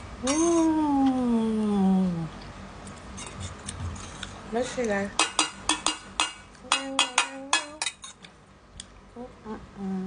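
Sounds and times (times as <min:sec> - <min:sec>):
spoon clinking against bowl: 0:05.2 - 0:08.2.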